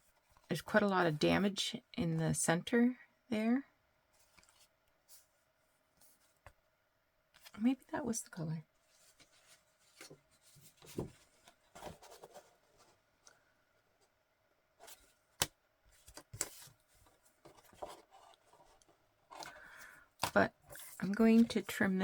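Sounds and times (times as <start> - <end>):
paper rustling: 8.9 - 13.0, 15.9 - 21.8.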